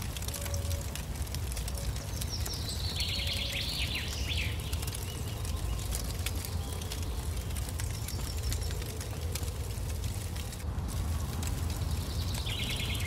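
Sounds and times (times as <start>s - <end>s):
campfire crackling: 0.0s - 13.0s
songbird singing: 1.6s - 9.5s, 11.5s - 13.0s.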